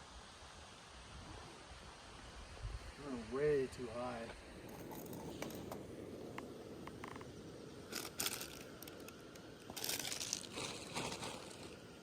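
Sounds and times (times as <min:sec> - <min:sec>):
low background noise: 0:00.0 - 0:12.0
rustling and crinkling: 0:04.7 - 0:07.3, 0:07.9 - 0:12.0.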